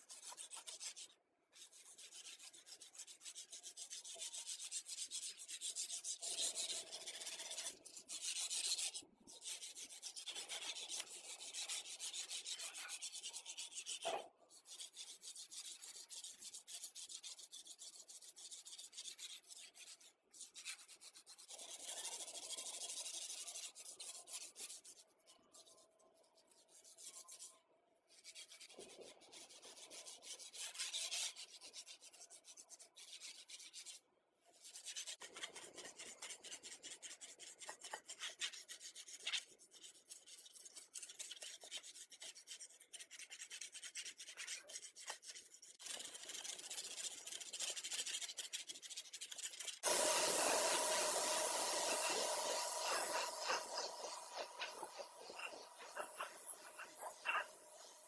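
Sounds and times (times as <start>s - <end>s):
hand scraping rusty metal: 49.8s - 58.0s.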